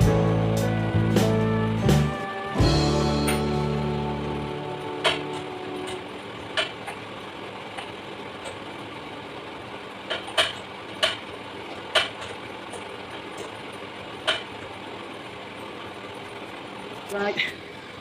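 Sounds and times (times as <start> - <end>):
steady engine-like hum: 0.0 - 18.0
sharp clicks and knocks: 5.0 - 7.0, 10.1 - 13.6, 14.2 - 14.5.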